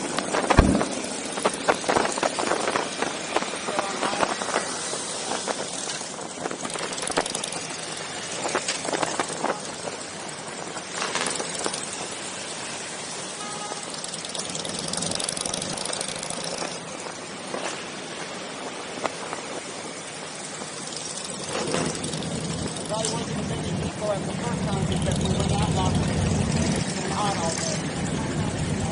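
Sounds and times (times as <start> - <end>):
motorcycle engines running: 0.0 - 28.9.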